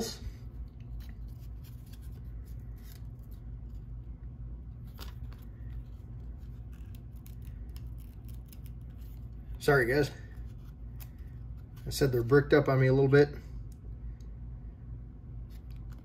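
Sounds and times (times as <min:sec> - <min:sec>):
steady low hum: 0:00.0 - 0:16.0
trading cards clicking and rustling: 0:04.8 - 0:12.6.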